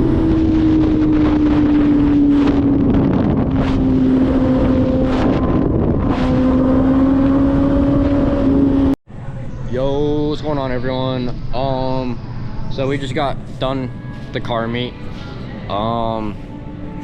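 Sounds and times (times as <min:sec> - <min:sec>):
motorcycle engine at high revs: 0:00.0 - 0:09.0
wind on microphone: 0:00.0 - 0:09.0.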